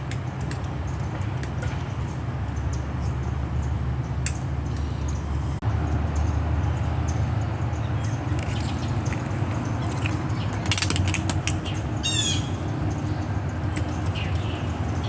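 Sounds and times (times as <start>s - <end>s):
squirrel chattering and squawking: 8.1s - 15.0s.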